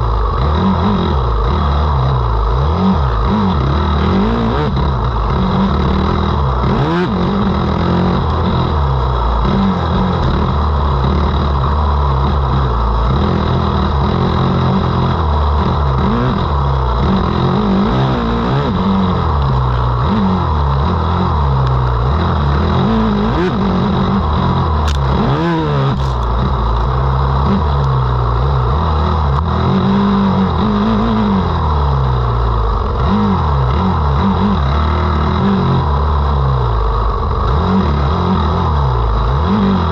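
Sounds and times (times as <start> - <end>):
motocross bike engine revving: 0.0 - 39.9
sharp clacks: 24.8 - 25.2.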